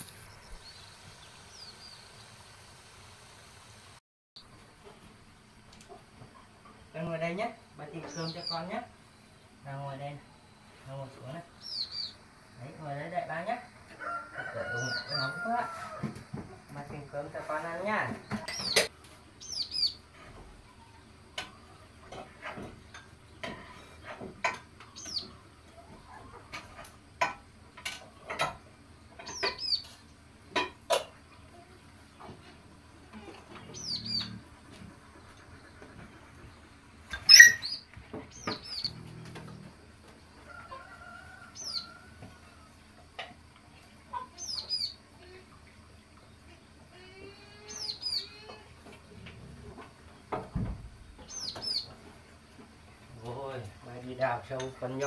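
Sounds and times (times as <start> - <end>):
birds chirping: 5.3 - 15.6, 16.4 - 27.0, 28.2 - 30.1, 31.1 - 39.9, 43.7 - 55.0.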